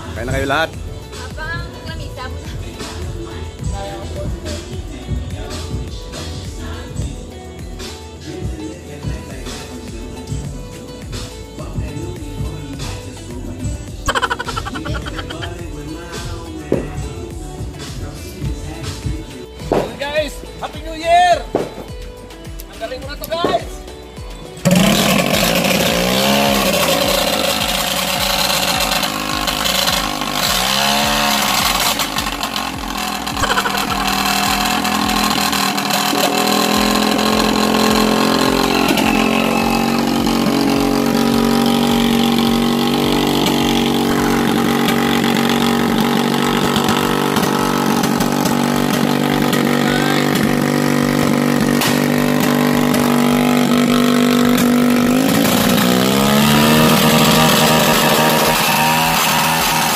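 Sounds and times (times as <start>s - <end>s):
motorcycle engine revving: 0.0s - 20.8s, 21.5s - 59.9s
motorcycle engine running: 0.0s - 59.9s
exhaust pops: 14.0s - 17.2s, 19.0s - 20.4s, 24.6s - 59.9s.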